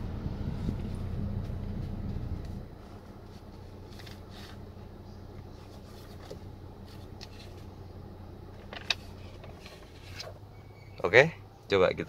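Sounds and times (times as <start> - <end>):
car cabin hum: 0.0 - 12.0
rustling: 0.5 - 4.6, 8.8 - 10.5.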